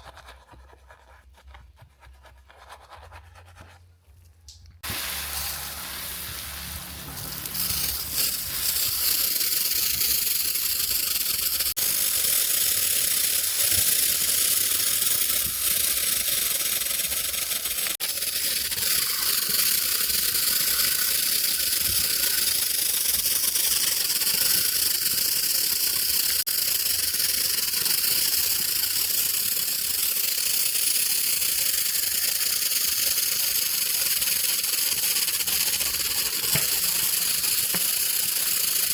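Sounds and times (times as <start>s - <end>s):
loud hissing spray: 4.8s - 16.5s.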